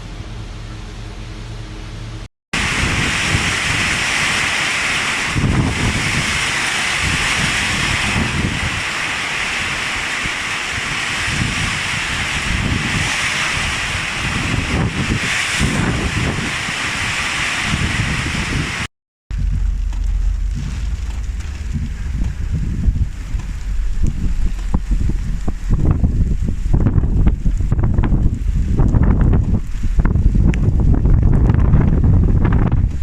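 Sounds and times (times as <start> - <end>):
flowing water rushing: 2.6 - 28.1
wind buffeting microphone: 2.6 - 33.0.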